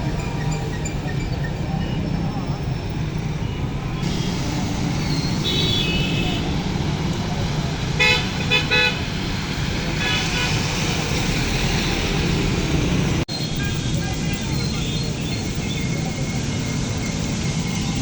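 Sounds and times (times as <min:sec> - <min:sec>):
road traffic: 0:00.0 - 0:18.0
vehicle horn toots: 0:05.3 - 0:06.7, 0:08.0 - 0:09.2, 0:10.0 - 0:10.9.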